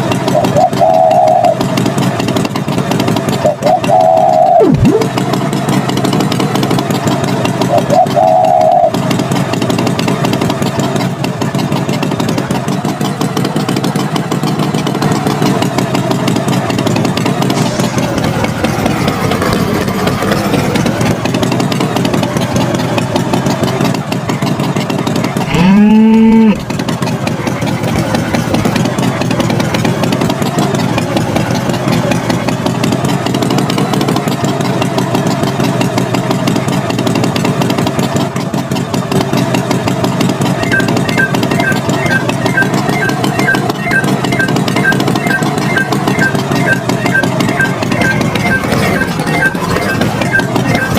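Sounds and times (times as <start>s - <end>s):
tractor engine running: 0.0s - 50.9s
cow mooing: 25.5s - 26.6s.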